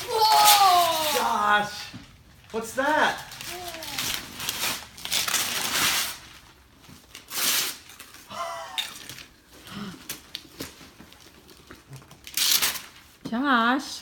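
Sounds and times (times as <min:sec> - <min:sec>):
child's wordless vocal sound: 0:00.0 - 0:01.2, 0:03.5 - 0:04.2
wrapping paper tearing and crinkling: 0:00.0 - 0:01.8, 0:02.4 - 0:09.4, 0:10.0 - 0:13.2.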